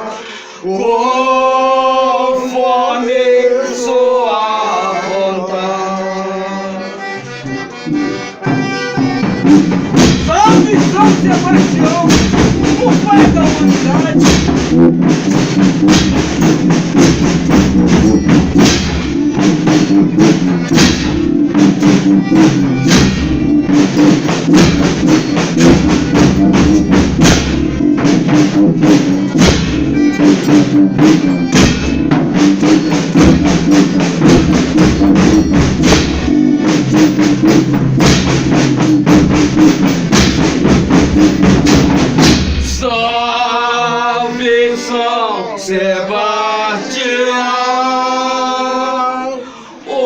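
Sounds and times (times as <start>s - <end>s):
sustained instrumental chords: 0.0s - 50.0s
drum and percussion strokes: 7.1s - 43.5s.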